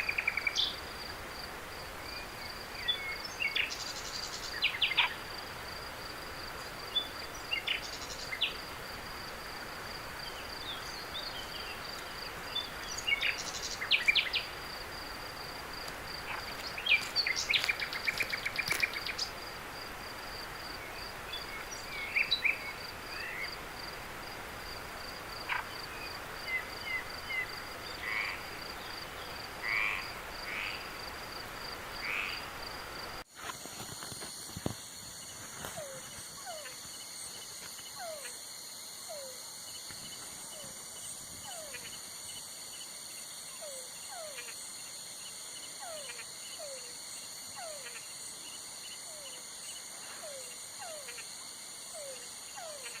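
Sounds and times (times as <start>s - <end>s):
high insect tones: 0.0s - 53.0s
insect trill: 0.0s - 53.0s
animal chirping and croaking calls: 2.1s - 5.4s, 10.4s - 14.8s, 16.1s - 19.4s, 25.3s - 31.0s, 32.0s - 32.6s, 35.6s - 37.1s, 37.8s - 42.5s, 43.3s - 53.0s.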